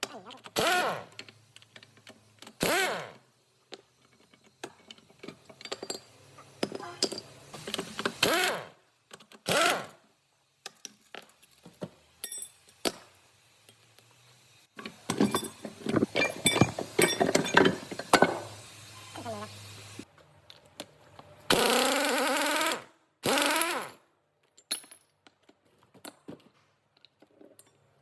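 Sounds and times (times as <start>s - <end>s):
metal tools clinking and knocking: 3.7s - 8.1s, 10.7s - 13.0s, 14.8s - 18.6s, 24.4s - 28.0s.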